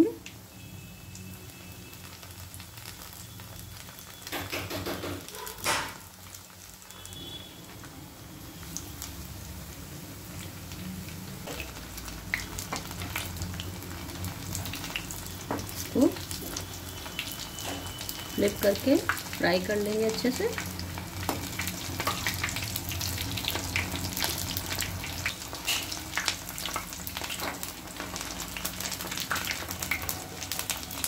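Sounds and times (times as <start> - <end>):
food sizzling in hot oil: 0.0 - 31.0.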